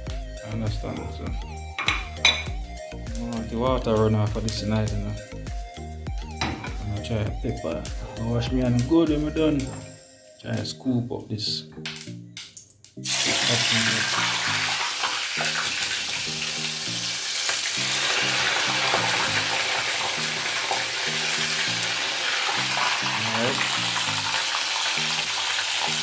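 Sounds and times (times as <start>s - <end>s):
music bass line: 0.0s - 12.4s
vegetables sizzling in hot oil: 13.0s - 26.0s.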